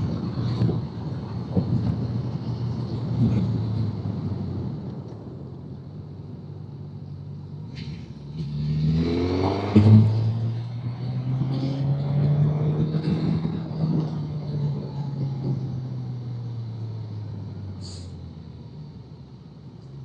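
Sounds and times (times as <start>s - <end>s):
motorcycle engine accelerating: 7.9s - 17.6s.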